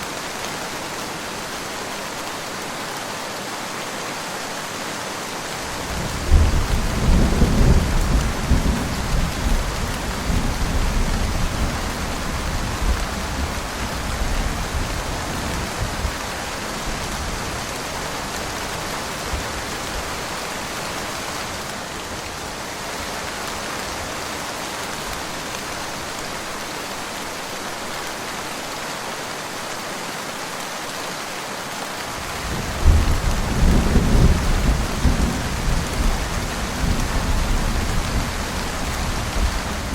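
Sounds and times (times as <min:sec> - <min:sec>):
steady rain: 0:00.0 - 0:39.9
thunder rumbling: 0:06.0 - 0:16.2, 0:32.5 - 0:39.9.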